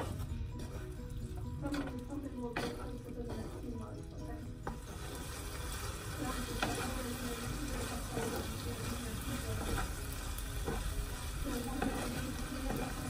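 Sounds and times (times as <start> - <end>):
curry sizzling in a frying pan: 1.6 - 13.0
spatula tapping against pan: 7.8 - 11.0, 11.6 - 13.0.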